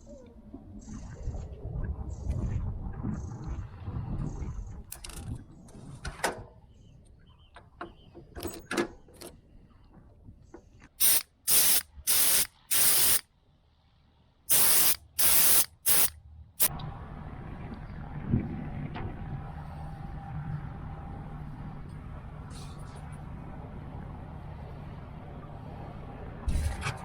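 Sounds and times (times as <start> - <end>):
hissing spray bursts: 11.0 - 13.2, 14.5 - 16.7.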